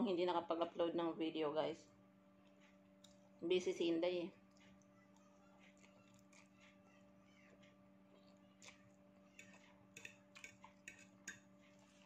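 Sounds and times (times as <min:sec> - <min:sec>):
faint steady hum: 0:00.0 - 0:12.0
person chewing noodles: 0:04.5 - 0:12.0.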